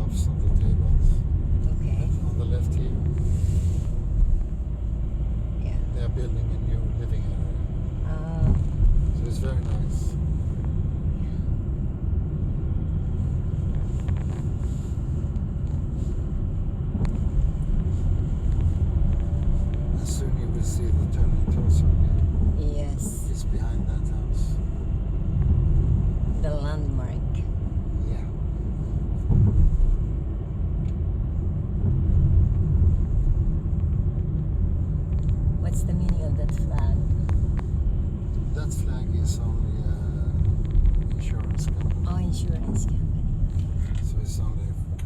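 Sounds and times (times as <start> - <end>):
car road and engine rumble: 0.0 - 45.0.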